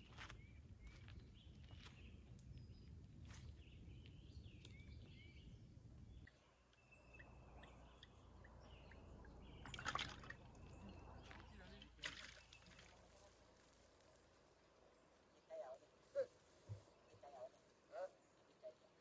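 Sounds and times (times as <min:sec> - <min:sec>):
small bird chirping: 0:00.1 - 0:13.4.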